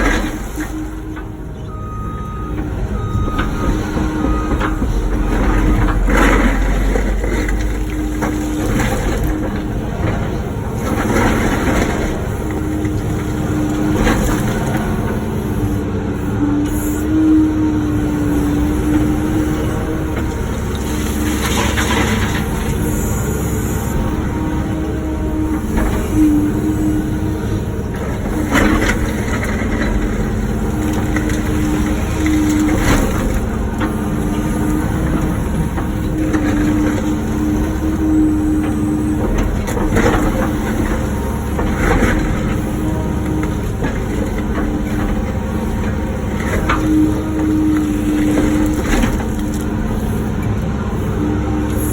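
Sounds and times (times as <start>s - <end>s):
excavator engine and hydraulics: 0.0s - 51.9s
bucket crunching and scraping concrete: 3.4s - 15.0s.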